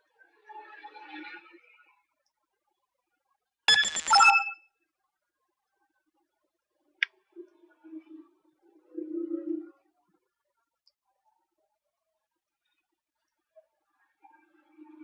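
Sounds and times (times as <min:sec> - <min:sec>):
sharp click: 0:03.7 - 0:04.6
short electronic chime: 0:03.7 - 0:04.6.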